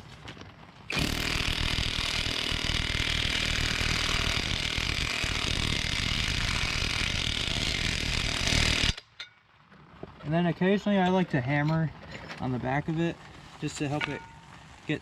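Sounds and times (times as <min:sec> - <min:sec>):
impact wrench hammering: 0:00.9 - 0:09.4.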